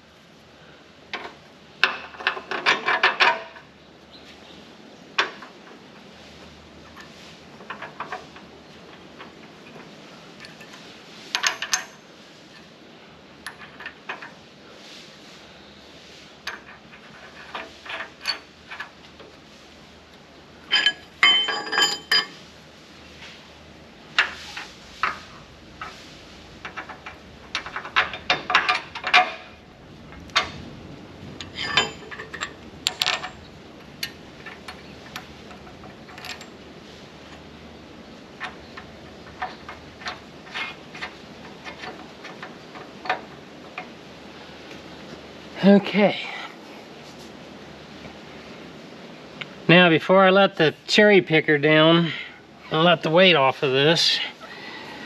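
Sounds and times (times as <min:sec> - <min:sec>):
metal tools clinking and clattering: 0:06.9 - 0:12.0, 0:20.7 - 0:22.4, 0:26.6 - 0:29.6, 0:31.3 - 0:36.6
ringing metal: 0:31.4 - 0:34.2.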